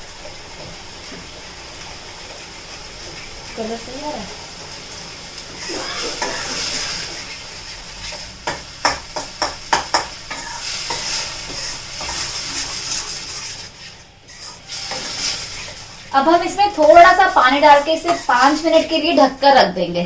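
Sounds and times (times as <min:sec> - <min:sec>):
spices sizzling in oil: 0:00.0 - 0:20.0
spatula knocking against pan: 0:08.4 - 0:12.2.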